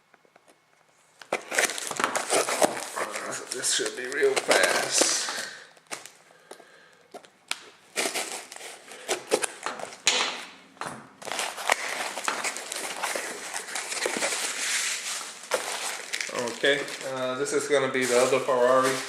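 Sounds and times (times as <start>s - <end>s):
cardboard package crinkling and ripping: 1.2s - 6.2s, 7.1s - 10.2s, 11.2s - 19.0s.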